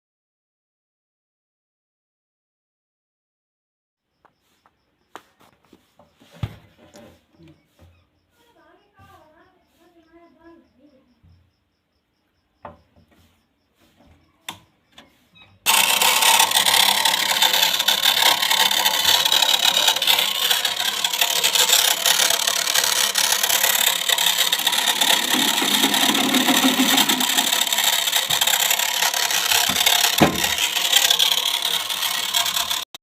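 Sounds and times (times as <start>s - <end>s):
machine running loudly: 15.7s - 33.0s.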